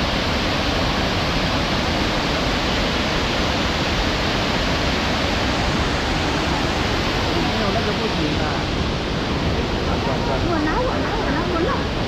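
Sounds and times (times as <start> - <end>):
waterfall pouring: 0.0 - 12.0.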